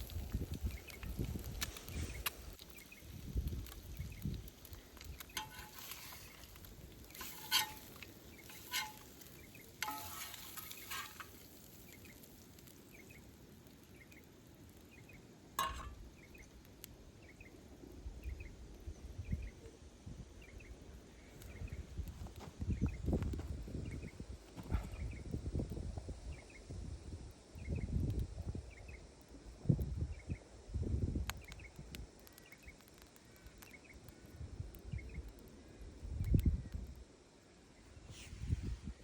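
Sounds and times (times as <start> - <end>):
meat sizzling over a campfire: 0.0 - 39.0
cooking utensil scraping and clinking: 5.3 - 11.6, 15.6 - 16.0.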